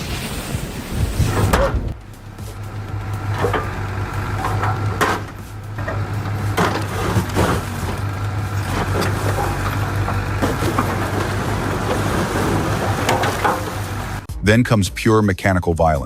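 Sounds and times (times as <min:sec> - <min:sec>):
machine engine humming: 0:00.2 - 0:14.3.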